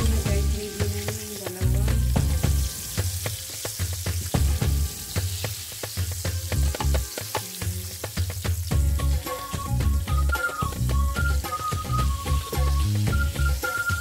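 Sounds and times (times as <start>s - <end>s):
background music with bass: 0.0s - 14.0s
chicken sizzling in frying oil: 0.0s - 14.0s.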